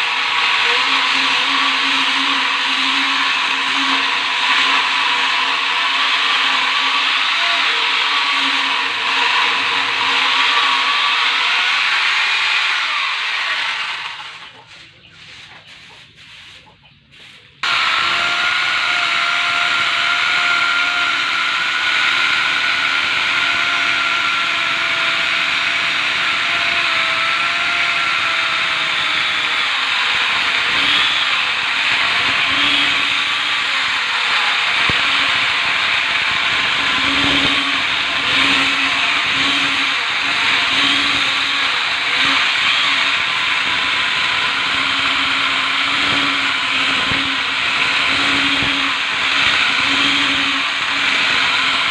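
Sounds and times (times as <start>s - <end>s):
chainsaw cutting wood: 0.0s - 14.8s, 17.6s - 51.9s
electric chainsaw whine: 0.0s - 14.8s, 17.6s - 51.9s.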